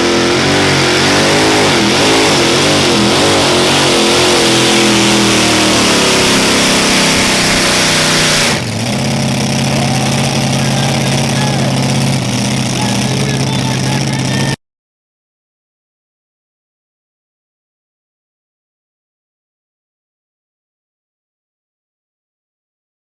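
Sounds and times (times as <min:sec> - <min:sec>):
pulling truck engine at full throttle: 0:00.0 - 0:14.6.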